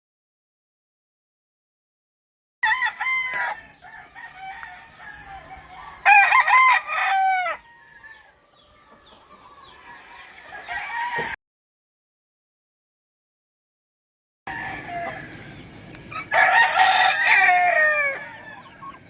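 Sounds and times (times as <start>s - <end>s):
roosters crowing: 2.6s - 11.4s, 14.5s - 19.0s.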